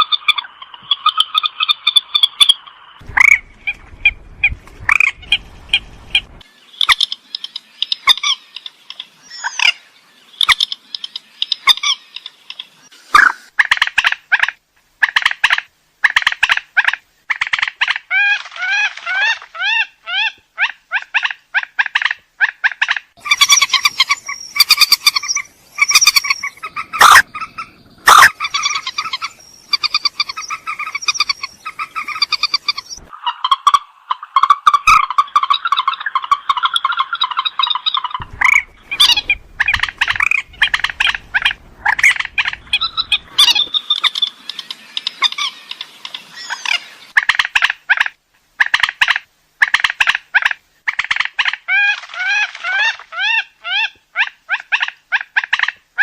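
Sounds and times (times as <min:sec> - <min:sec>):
swamphen calling: 0:00.0 - 0:55.7.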